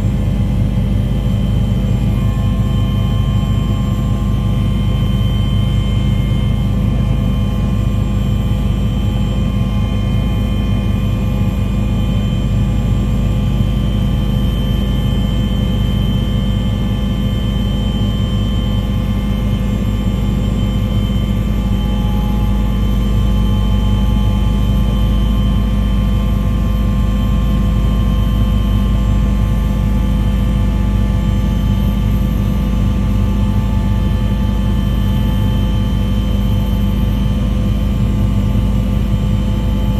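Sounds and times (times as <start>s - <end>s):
steady whining tones: 0.0s - 12.5s
aircraft engine drone: 0.0s - 39.9s.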